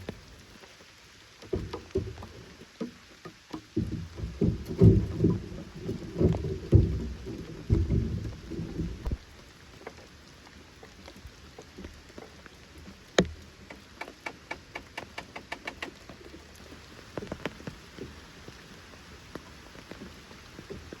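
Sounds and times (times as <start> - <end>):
rain hiss: 0.0 - 21.0
heavy low thuds: 3.8 - 9.2
sharp clicks: 13.2 - 16.1.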